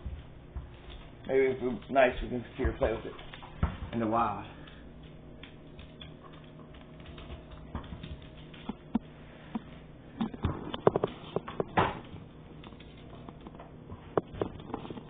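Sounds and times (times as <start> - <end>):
dog claws clicking: 4.6 - 9.0.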